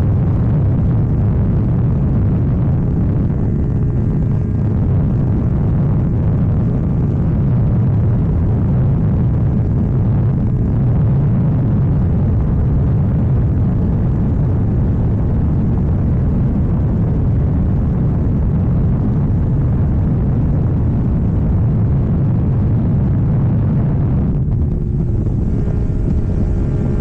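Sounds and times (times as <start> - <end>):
motorcycle engine running: 0.0 - 11.2, 23.1 - 27.0.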